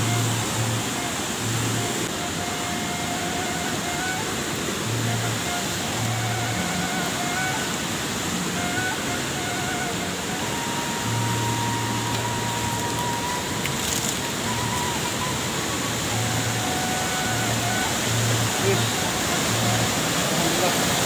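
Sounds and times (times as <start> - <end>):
waterfall roar: 0.0 - 21.0.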